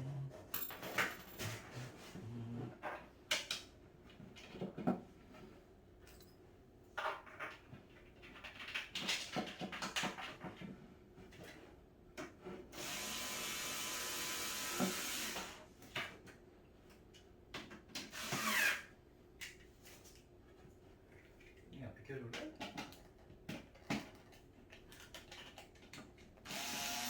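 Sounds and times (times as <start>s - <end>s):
knocks and clatter of parts: 0.5s - 1.7s
power drill running: 12.8s - 15.6s, 18.1s - 18.8s, 26.4s - 27.0s.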